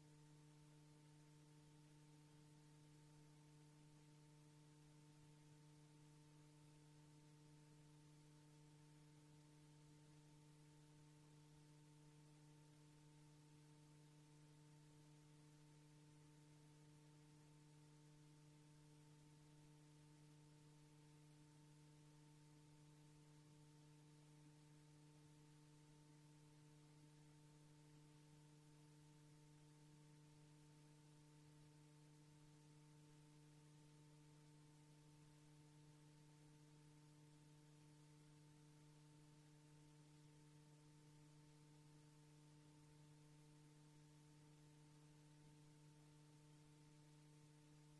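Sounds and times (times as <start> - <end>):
faint steady hum: 0.0 - 47.9.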